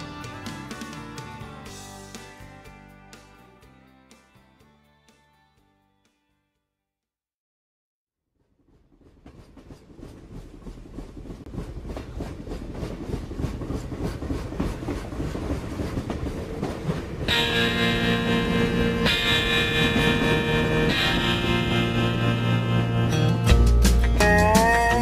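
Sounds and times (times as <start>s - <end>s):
guitar music: 0.0s - 5.0s, 17.3s - 25.0s
train clickety-clack on rails: 8.4s - 22.0s.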